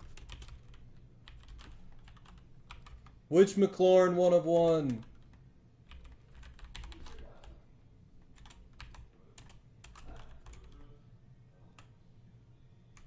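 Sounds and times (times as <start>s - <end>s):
computer keyboard key clicks: 0.0s - 3.2s, 4.9s - 7.3s, 8.3s - 10.8s.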